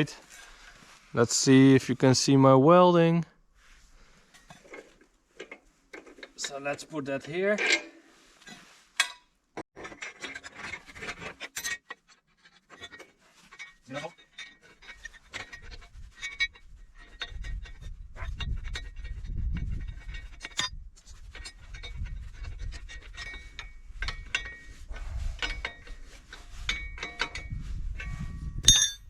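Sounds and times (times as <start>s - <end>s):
steel parts clinking and scraping: 9.8s - 24.8s, 25.4s - 29.0s
short metallic rings: 28.6s - 29.0s.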